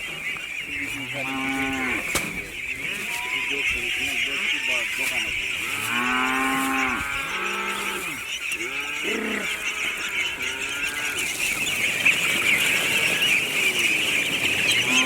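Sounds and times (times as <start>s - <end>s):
cattle mooing: 0.8s - 2.1s, 5.6s - 11.3s, 14.8s - 15.0s.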